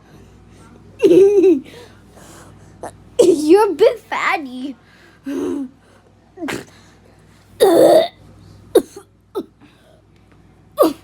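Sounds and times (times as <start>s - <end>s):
person coughing: 7.6s - 8.1s, 8.8s - 9.5s, 10.8s - 11.0s.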